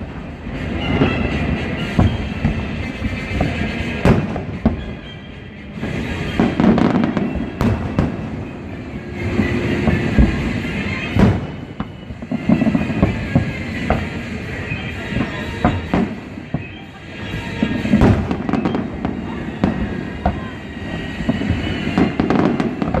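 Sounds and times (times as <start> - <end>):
continuous rumble: 0.0 - 23.0
fireworks bangs and booms: 0.0 - 23.0.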